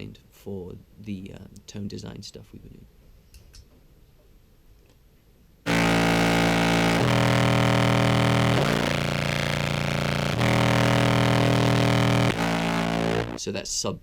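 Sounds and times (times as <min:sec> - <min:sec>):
fuzzed contrabass clarinet: 0:05.7 - 0:13.4.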